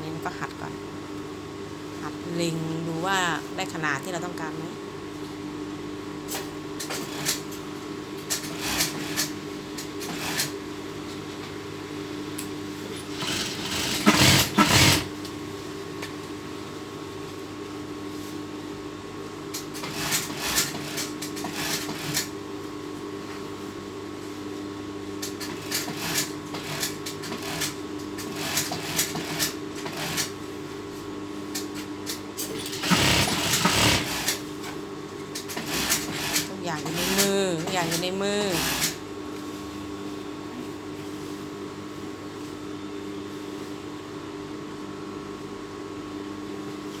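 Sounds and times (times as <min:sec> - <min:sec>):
sewing machine stitching: 0:08.3 - 0:09.4, 0:13.0 - 0:15.1, 0:32.4 - 0:34.5, 0:35.5 - 0:39.0
sewing machine motor hum: 0:12.9 - 0:15.2, 0:32.4 - 0:34.6, 0:35.4 - 0:39.0.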